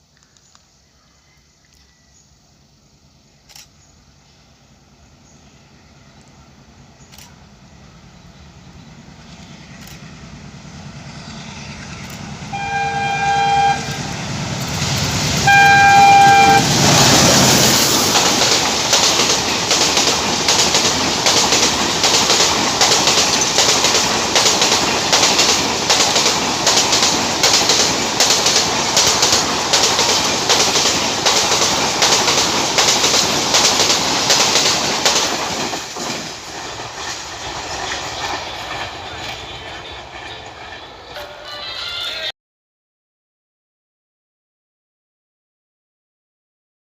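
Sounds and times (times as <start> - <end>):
locomotive horn blasts: 12.5 - 14.3, 15.4 - 16.8.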